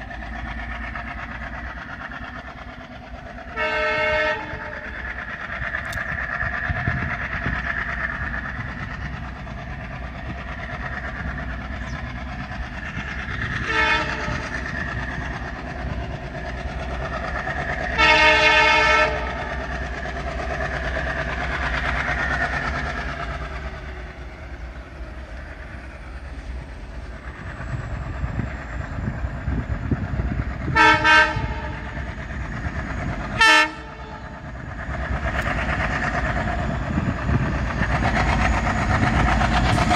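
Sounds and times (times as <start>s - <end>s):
diesel locomotive engine rumble: 0.0s - 39.9s
train air horn blasts: 3.5s - 4.9s, 13.6s - 14.4s, 18.0s - 19.5s, 30.8s - 32.0s, 33.4s - 34.4s.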